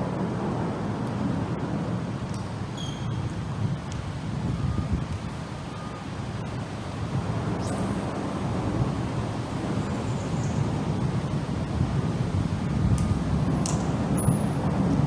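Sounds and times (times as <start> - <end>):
wind buffeting microphone: 0.0 - 15.0
faint high chirp: 2.8 - 3.2.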